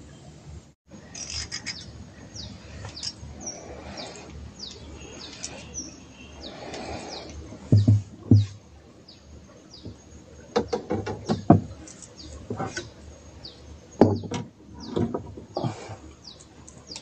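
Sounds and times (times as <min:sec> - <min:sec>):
birds whistling: 0:01.1 - 0:10.0.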